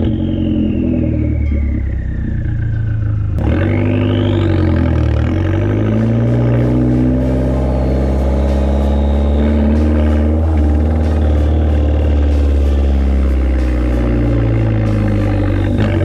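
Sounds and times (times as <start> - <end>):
loud car exhaust note: 0.0 - 16.0.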